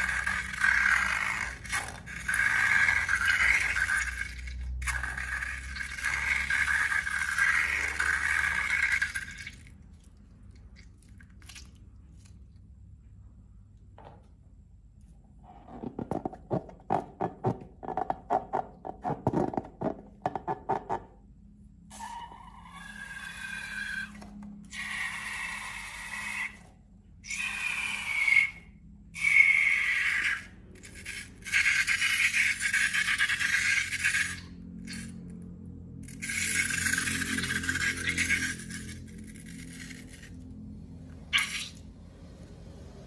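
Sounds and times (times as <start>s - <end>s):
squelchy squeaky slime stretches: 36.0s - 40.5s, 41.1s - 41.9s.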